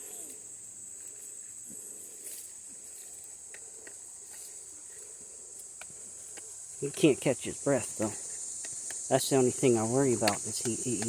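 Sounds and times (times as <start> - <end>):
insect chorus buzzing: 0.0 - 11.0
faint ticks: 7.9 - 9.1.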